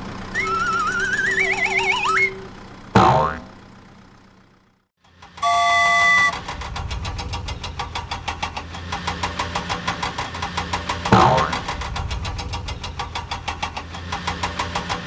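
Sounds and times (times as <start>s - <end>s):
horn honk: 0.0s - 3.9s, 5.4s - 6.5s
vehicle engine chugging: 0.0s - 15.0s.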